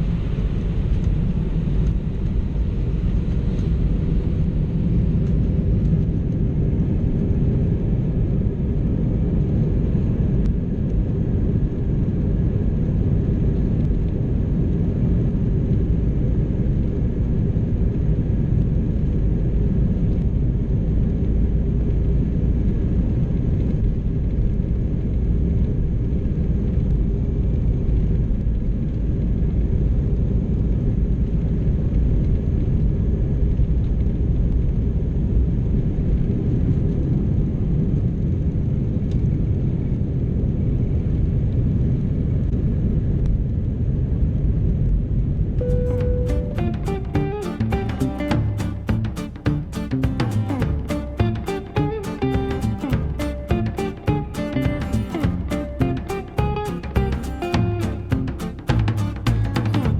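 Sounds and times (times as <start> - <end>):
jet engine cabin rumble: 0.0 - 22.8.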